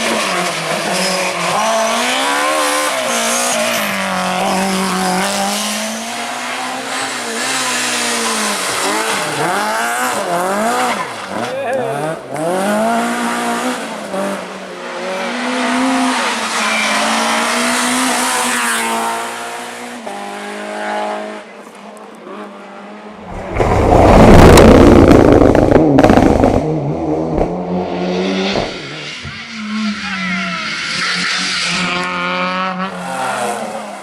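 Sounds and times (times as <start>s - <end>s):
rally car engines revving: 0.0s - 34.0s
loud rough rush of noise: 23.1s - 29.1s.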